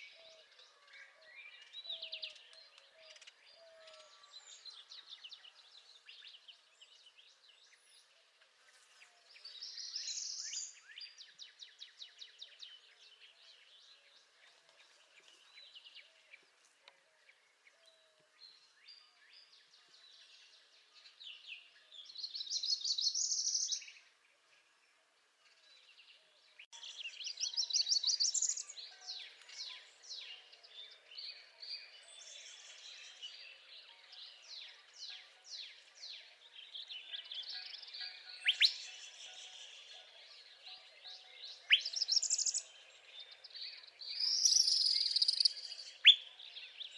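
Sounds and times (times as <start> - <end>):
other birds chirping softly: 0.0 - 46.9
bird singing rising trills: 26.7 - 46.9.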